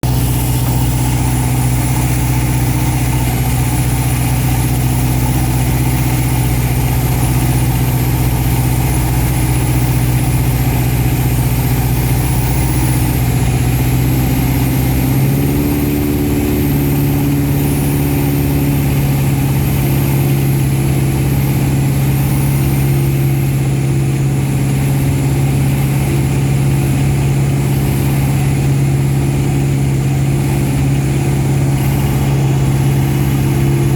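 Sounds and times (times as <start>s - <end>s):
light aircraft engine droning: 0.0s - 33.9s.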